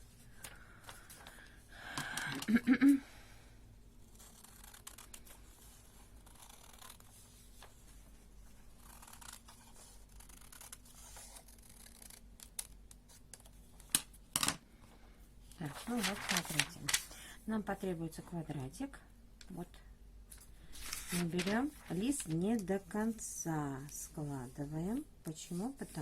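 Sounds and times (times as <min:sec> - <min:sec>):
paper rustling: 0:15.6 - 0:17.2, 0:20.3 - 0:22.7.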